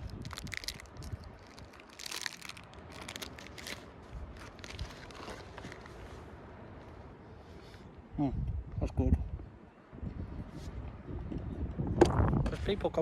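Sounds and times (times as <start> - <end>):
plastic wrapper crinkling: 0.0 - 6.0.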